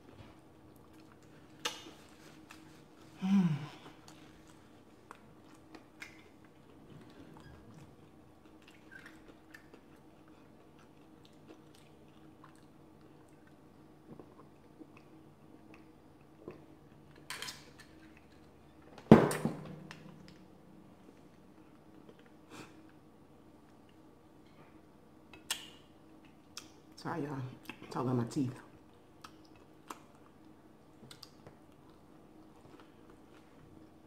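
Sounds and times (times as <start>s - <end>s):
person humming: 3.2s - 3.8s
wet chewing clicks: 8.4s - 16.7s, 28.9s - 30.4s, 31.0s - 32.0s.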